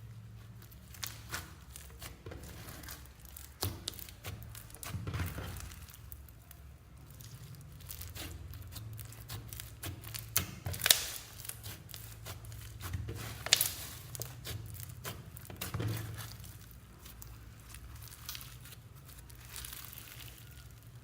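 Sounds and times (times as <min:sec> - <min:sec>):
sticky slime clicks and crackles: 0:00.6 - 0:21.0.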